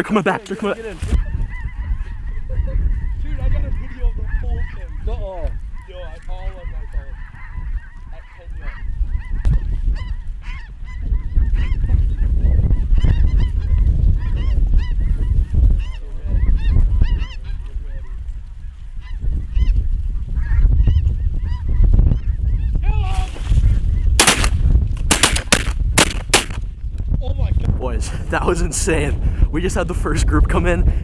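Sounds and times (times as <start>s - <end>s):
low wind rumble: 18.2s - 31.0s
geese calling: 23.0s - 26.6s
shotgun blasts: 24.2s - 26.6s.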